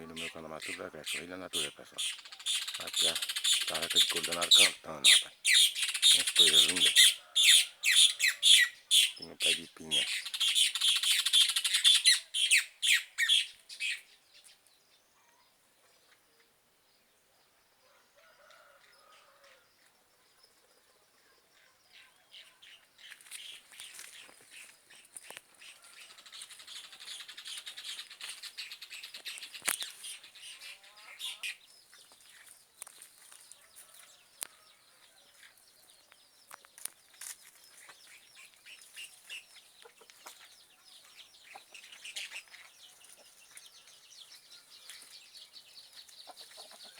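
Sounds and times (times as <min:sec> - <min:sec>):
bird calling in harsh rapid notes: 0:00.6 - 0:13.5.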